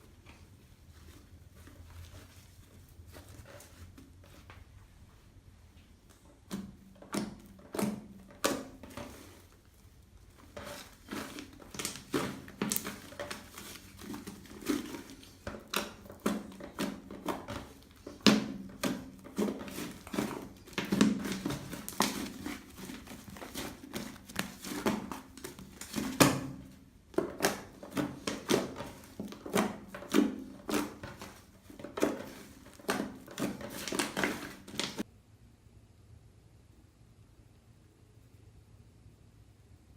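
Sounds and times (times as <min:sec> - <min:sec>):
slime squelching by hand: 0:06.0 - 0:35.1.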